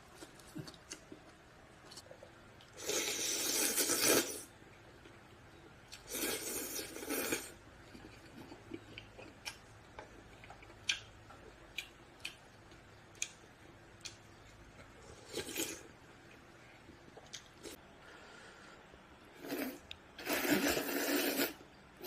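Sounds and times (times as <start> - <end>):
slurping noodles: 2.7 - 4.5, 6.1 - 7.6, 19.4 - 21.6.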